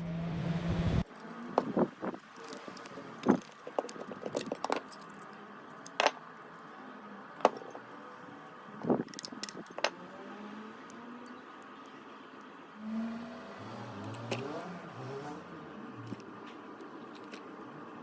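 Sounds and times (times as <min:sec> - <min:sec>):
small hard objects clicking: 0:08.9 - 0:09.9.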